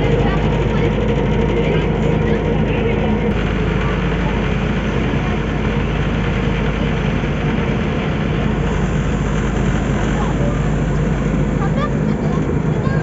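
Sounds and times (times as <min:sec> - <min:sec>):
motorboat engine running: 0:00.0 - 0:13.0.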